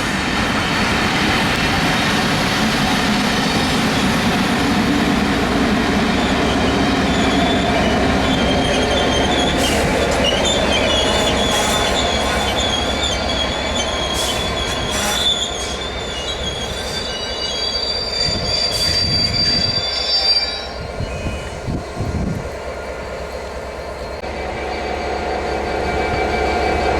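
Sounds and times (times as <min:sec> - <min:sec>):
train wheels rumbling on rail: 0:00.0 - 0:26.9
high wavering wheel squeal: 0:06.1 - 0:22.2, 0:24.0 - 0:26.9.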